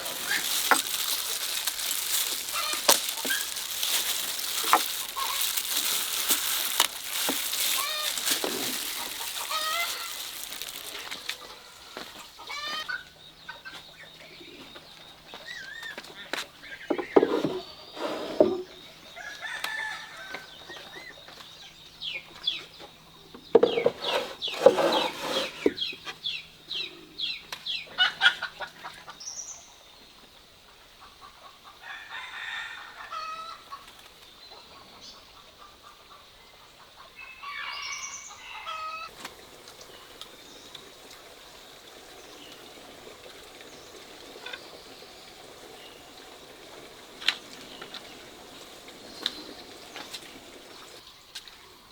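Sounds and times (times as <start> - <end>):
chicken calls: 0.0 - 13.8, 37.0 - 51.0.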